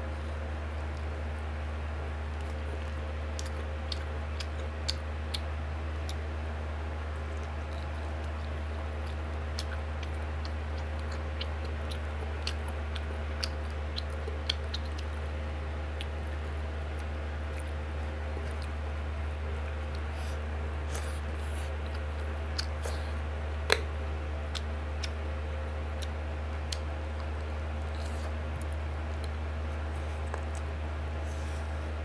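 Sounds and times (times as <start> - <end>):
chewing and eating: 0.0 - 32.0
steady low hum: 0.0 - 32.0
wet clicks and smacks: 2.4 - 6.2, 7.4 - 15.2, 23.7 - 23.9, 24.5 - 25.2.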